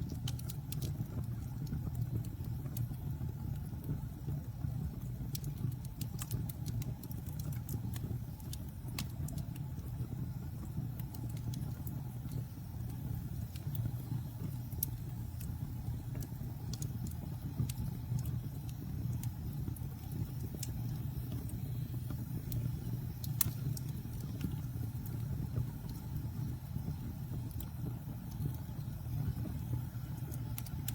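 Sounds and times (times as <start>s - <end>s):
campfire wood crackling: 0.0s - 30.9s
low fire rumble: 0.0s - 30.9s.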